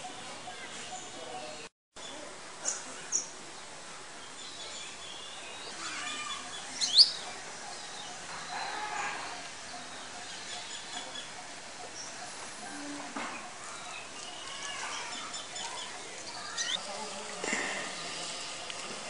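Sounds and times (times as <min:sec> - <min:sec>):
birds chirping: 0:00.0 - 0:19.0
steady background hiss: 0:01.0 - 0:19.0
faint voices: 0:05.4 - 0:19.0.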